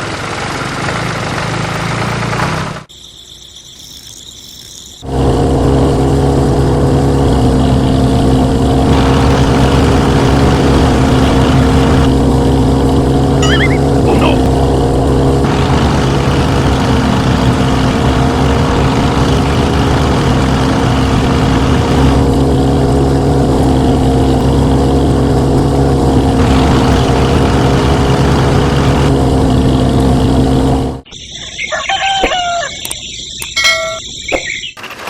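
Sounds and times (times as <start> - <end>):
chicken clucking: 31.4 - 33.0.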